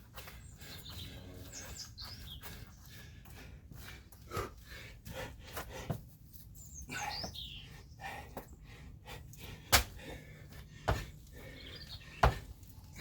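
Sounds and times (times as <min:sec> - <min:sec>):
bird chirping: 0:00.2 - 0:03.0, 0:06.5 - 0:08.7, 0:11.3 - 0:13.0.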